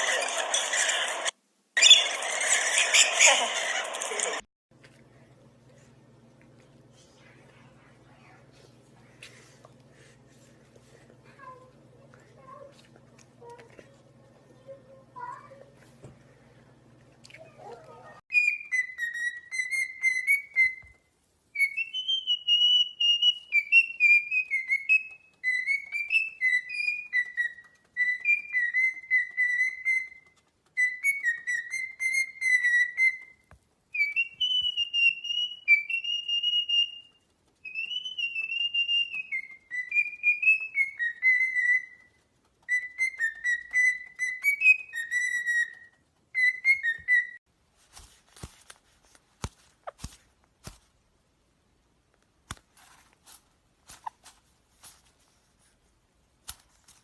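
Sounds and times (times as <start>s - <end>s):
parrot whistling a melody: 18.3s - 21.0s, 21.6s - 47.4s.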